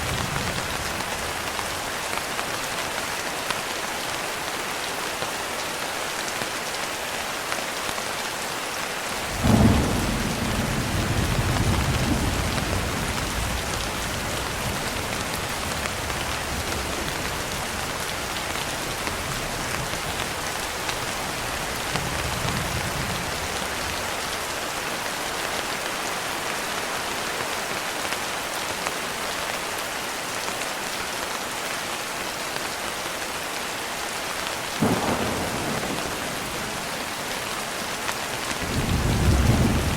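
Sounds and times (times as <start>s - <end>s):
steady rain: 0.0s - 39.9s
thunder clap: 9.3s - 14.0s, 34.8s - 37.0s
faint rolling thunder: 9.3s - 24.0s, 34.8s - 39.9s.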